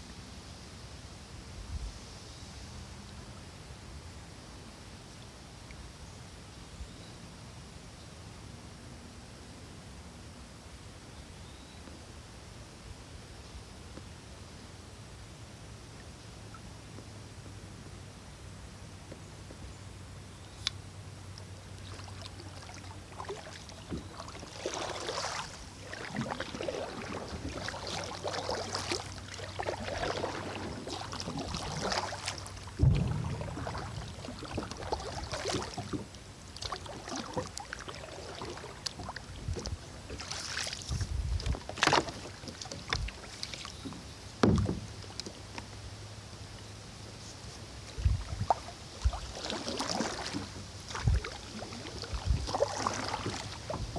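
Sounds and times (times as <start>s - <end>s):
water splashing off paddle: 21.8s - 45.4s, 47.9s - 53.9s
sharp knocks: 32.8s - 35.1s.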